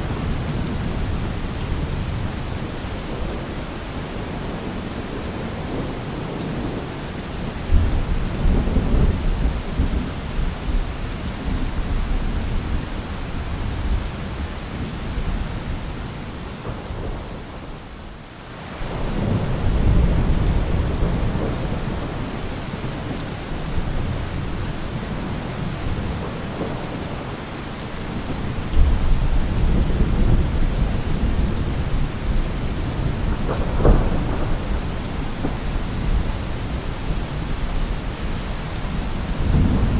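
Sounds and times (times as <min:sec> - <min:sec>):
heavy rain: 0:00.0 - 0:39.9
rolling thunder: 0:28.2 - 0:37.9, 0:39.3 - 0:39.9.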